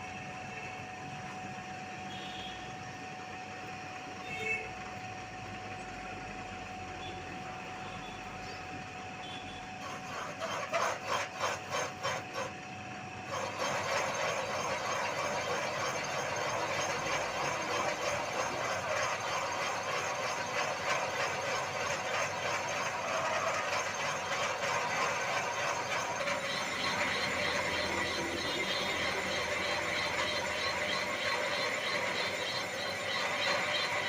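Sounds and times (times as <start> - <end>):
machine tool cutting metal: 9.7 - 34.0.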